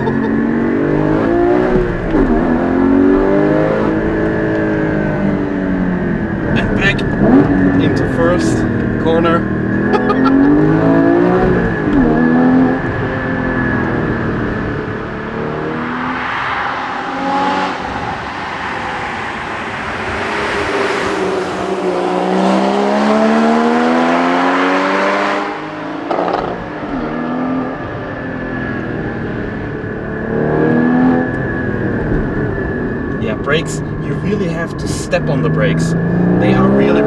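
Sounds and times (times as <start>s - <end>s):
car engine heard from inside cabin: 0.0s - 19.7s, 20.6s - 37.0s.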